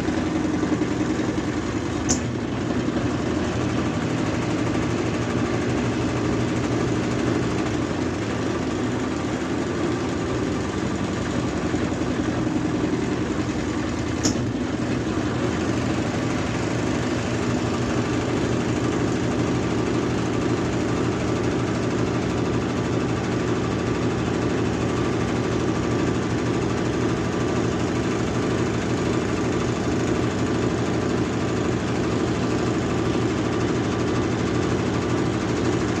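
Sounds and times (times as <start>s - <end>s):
washing machine spin hum: 0.0s - 36.0s
short click: 2.0s - 2.3s, 14.2s - 14.5s.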